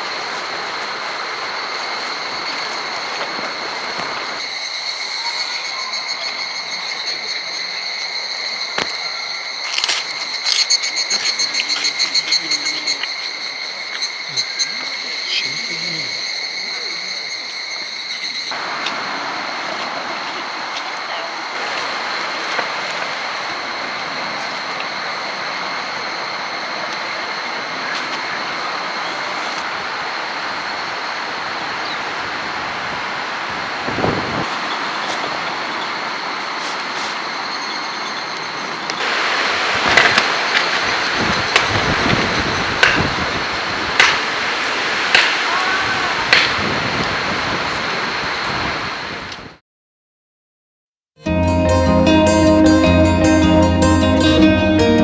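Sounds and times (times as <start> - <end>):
strong wind rushing: 0.0 - 6.9, 18.5 - 36.6, 38.8 - 49.6
insect pulsing chirp: 0.0 - 49.4
insects droning: 0.0 - 49.6.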